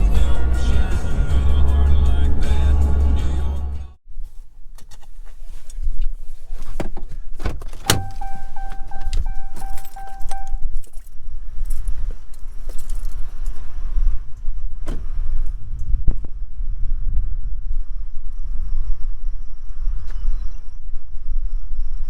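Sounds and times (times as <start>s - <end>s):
low steady rumble: 0.0s - 4.7s
keys jangling: 7.8s - 13.8s.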